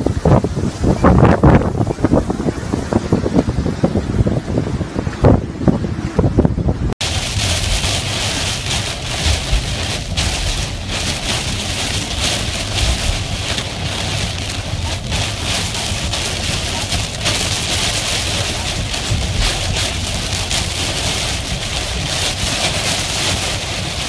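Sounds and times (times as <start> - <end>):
low wind rumble: 0.0 - 24.0
heavy rain on a car: 7.0 - 24.0.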